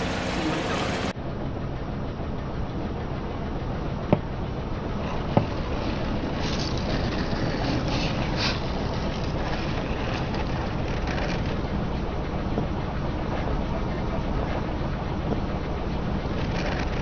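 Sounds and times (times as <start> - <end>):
car engine running: 0.0 - 1.1
tyres rolling slowly: 0.0 - 1.2, 3.0 - 17.0.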